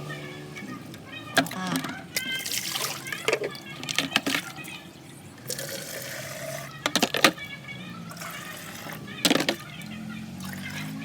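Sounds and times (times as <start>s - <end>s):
water pouring into plastic jug: 1.4s - 7.4s, 8.1s - 10.9s
plastic knocks: 6.8s - 7.4s, 9.2s - 9.7s.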